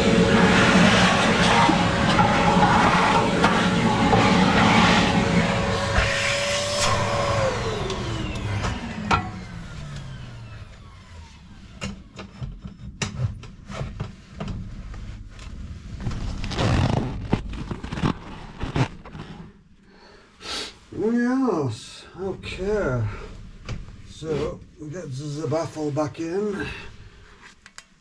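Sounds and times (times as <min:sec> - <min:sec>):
vacuum motor whine winding down: 0:00.0 - 0:12.3.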